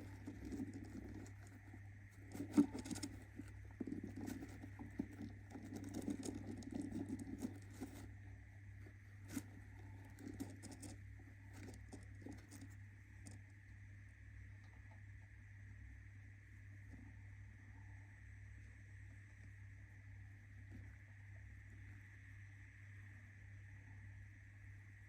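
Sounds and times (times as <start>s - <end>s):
bird scratching in nest: 0.0s - 13.4s
low electrical hum: 0.0s - 25.0s.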